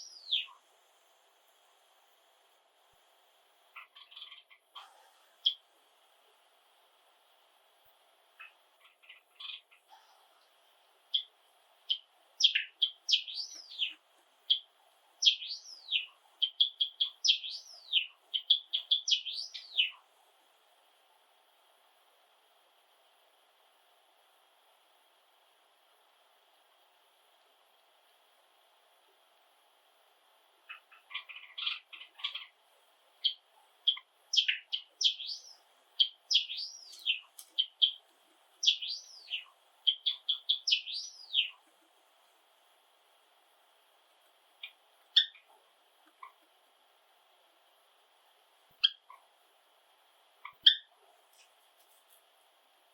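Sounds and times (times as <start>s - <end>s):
sparrow singing: 0.0s - 0.6s, 3.8s - 4.6s, 8.4s - 9.9s, 11.1s - 11.3s, 11.9s - 20.0s, 30.7s - 32.6s, 33.2s - 38.0s, 38.6s - 41.6s, 44.6s - 45.6s, 50.4s - 50.9s.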